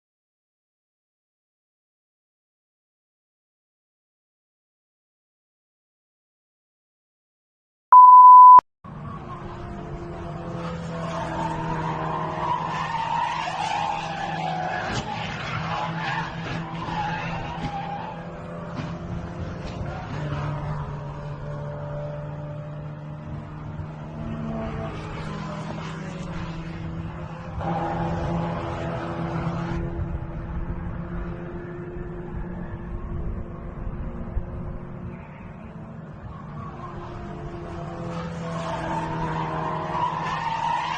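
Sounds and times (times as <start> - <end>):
road rumble: 8.9 - 40.9
car tyres squealing: 9.0 - 21.8, 24.3 - 29.5, 35.1 - 40.9.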